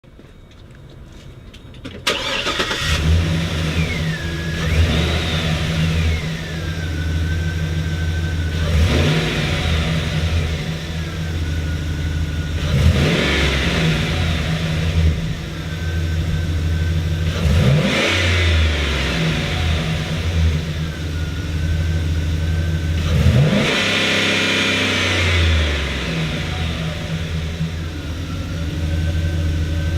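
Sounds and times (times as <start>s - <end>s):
van engine idling and revving: 0.9s - 29.9s.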